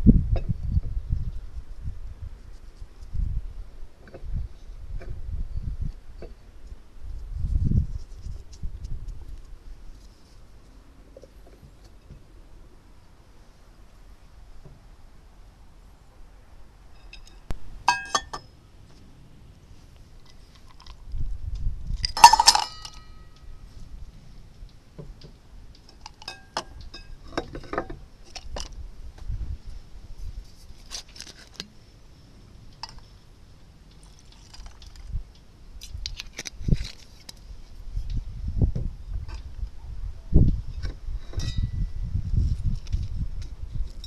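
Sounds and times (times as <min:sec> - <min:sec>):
glass or crockery clinking: 0:17.0 - 0:18.5, 0:22.1 - 0:23.3.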